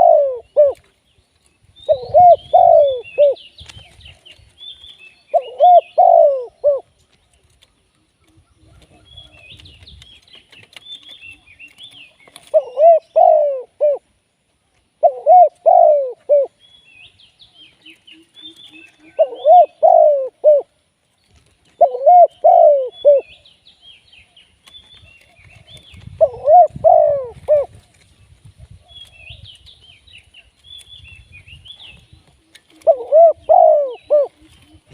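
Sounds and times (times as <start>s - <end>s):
dove cooing: 0.0s - 0.9s, 1.8s - 4.4s, 5.3s - 6.9s, 8.3s - 9.9s, 11.0s - 14.1s, 15.0s - 16.6s, 17.7s - 20.8s, 21.7s - 23.4s, 25.0s - 29.6s, 31.9s - 34.9s
small birds chirping: 0.0s - 34.9s.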